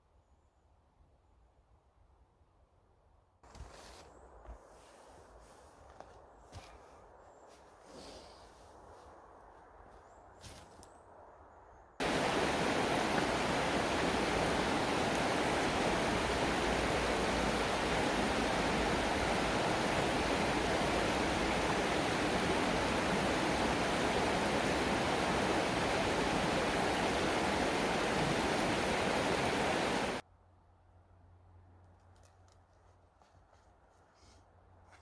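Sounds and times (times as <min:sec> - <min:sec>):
loud steady rushing noise: 0:12.0 - 0:30.2.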